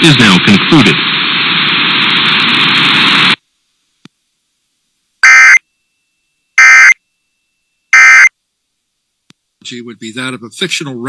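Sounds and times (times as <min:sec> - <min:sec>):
buzzing two-tone digital data bursts: 0:05.2 - 0:05.6, 0:06.6 - 0:07.0, 0:08.0 - 0:08.3.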